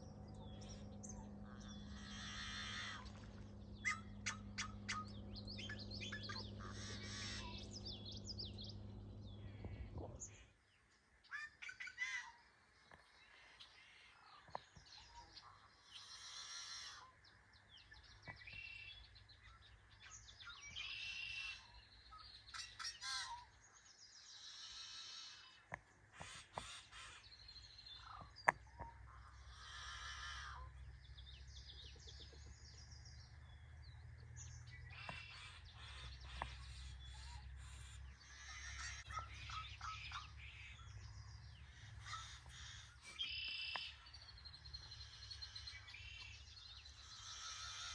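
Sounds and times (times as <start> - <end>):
low rumble: 0.0 - 10.4
birds harsh calls: 0.0 - 10.5, 17.9 - 23.6, 24.2 - 47.9.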